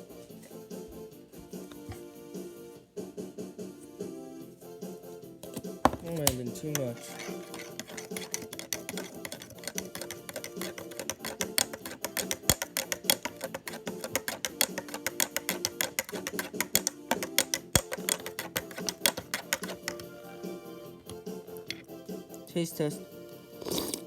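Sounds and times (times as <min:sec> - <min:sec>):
spoon clinking in a mug: 0:05.4 - 0:20.2.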